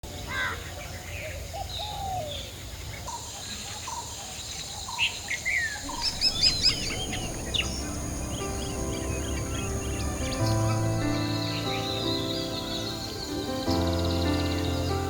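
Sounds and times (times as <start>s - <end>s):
birds chirping and whistling: 3.8s - 15.0s.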